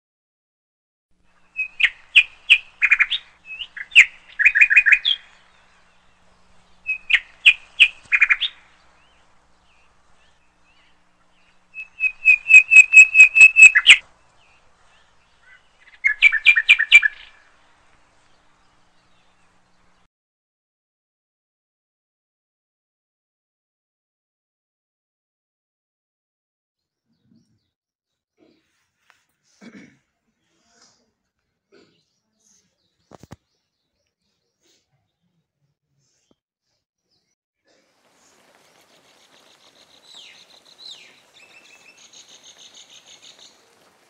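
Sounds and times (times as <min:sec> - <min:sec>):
songbird chirping: 0:01.2 - 0:20.1, 0:31.4 - 0:44.0.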